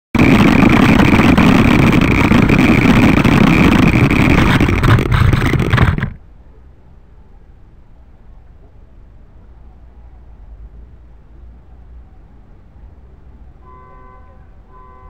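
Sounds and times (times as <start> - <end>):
vehicle motor noise: 0.2 - 6.2.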